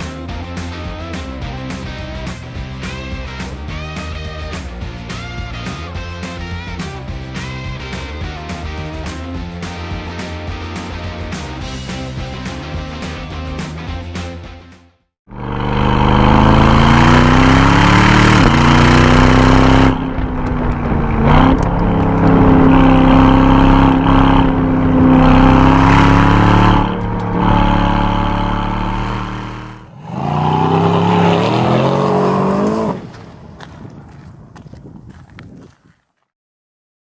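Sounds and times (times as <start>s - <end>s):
car exhaust accelerating hard: 15.3s - 35.4s.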